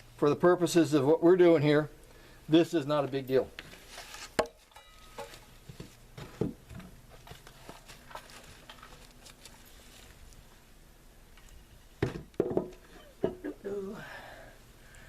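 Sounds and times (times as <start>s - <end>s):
light handling noises: 3.0s - 10.6s.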